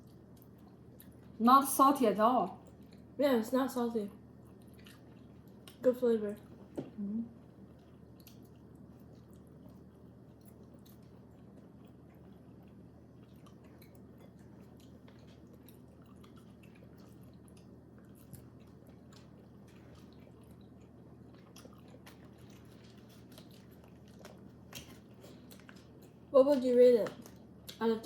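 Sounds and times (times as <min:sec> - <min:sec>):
low steady hum: 0:00.0 - 0:28.0
chewing squid snack: 0:04.3 - 0:06.5, 0:07.6 - 0:26.3.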